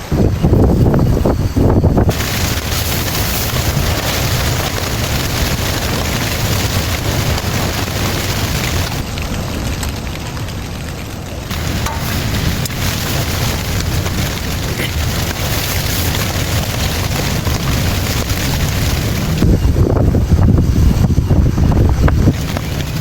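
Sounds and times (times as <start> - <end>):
heavy rain pouring: 0.0 - 23.0
low rumble: 0.0 - 23.0.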